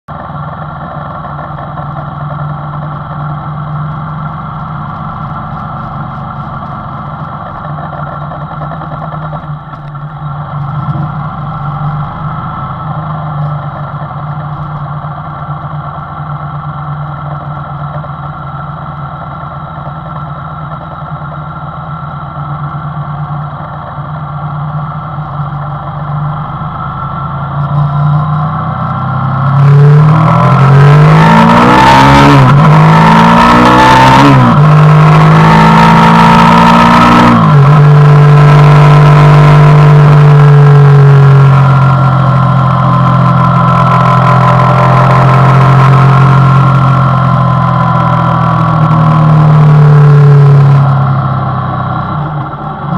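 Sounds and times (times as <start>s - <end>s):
two-cylinder engine idling: 0.1s - 29.5s.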